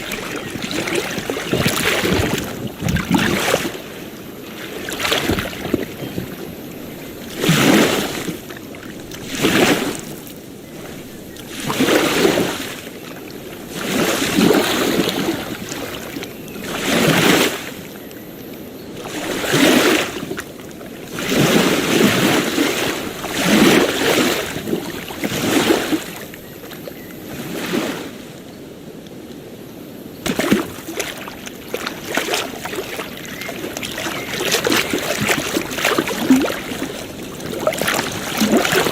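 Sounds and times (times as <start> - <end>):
small waves breaking on beach: 0.0 - 38.9.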